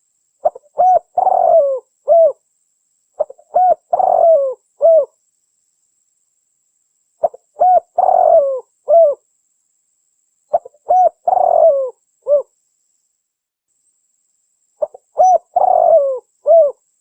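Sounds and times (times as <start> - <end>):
dove cooing: 0.4 - 2.4, 3.2 - 5.2, 7.2 - 9.2, 10.5 - 12.5, 14.8 - 16.8.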